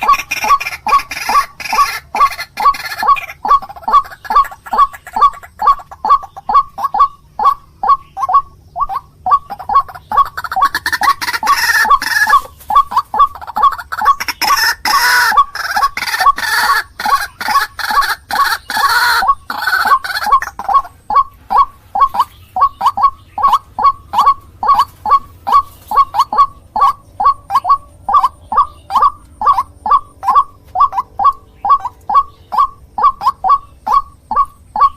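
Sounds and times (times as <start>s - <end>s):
harsh chorus of bird calls: 0.0s - 34.9s
waterhen calling: 0.0s - 34.9s.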